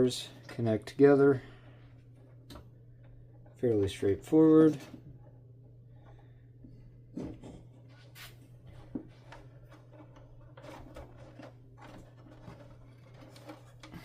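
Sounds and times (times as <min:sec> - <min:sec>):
steady low hum: 0:00.0 - 0:14.0
small parts clicking and rustling: 0:09.1 - 0:14.0.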